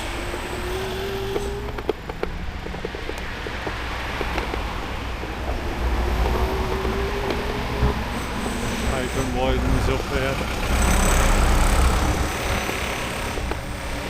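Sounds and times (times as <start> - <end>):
wind rumble on microphone: 0.0 - 8.6.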